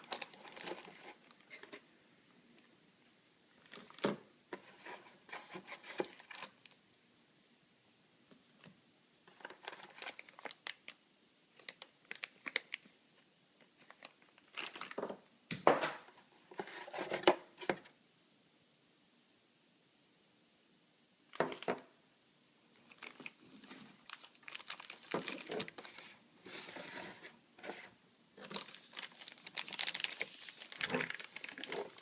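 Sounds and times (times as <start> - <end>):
packaging crinkling and tearing: 0.0 - 1.7, 3.6 - 4.2, 5.7 - 6.8, 9.3 - 11.0, 11.6 - 12.8, 13.8 - 15.1, 22.8 - 26.2, 28.4 - 32.0.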